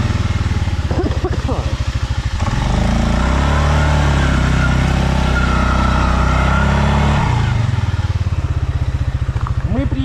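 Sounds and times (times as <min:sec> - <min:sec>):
atv engine revving: 0:00.0 - 0:10.0.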